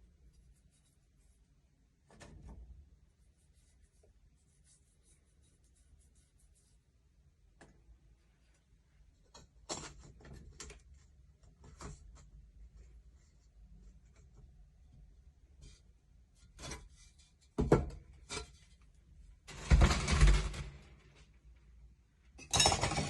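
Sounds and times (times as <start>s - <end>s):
scratchy strokes: 0.2s - 1.6s, 3.2s - 6.9s.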